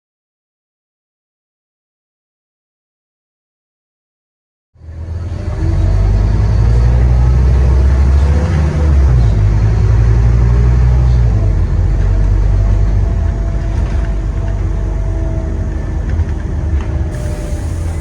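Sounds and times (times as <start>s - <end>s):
bus engine running under load: 4.8s - 18.0s.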